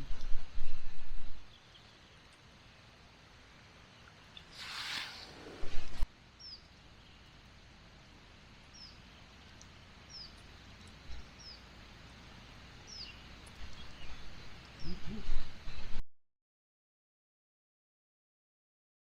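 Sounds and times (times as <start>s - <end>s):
background hiss: 0.0s - 16.0s
small bird chirping: 6.4s - 7.4s, 8.7s - 11.8s, 12.8s - 15.9s.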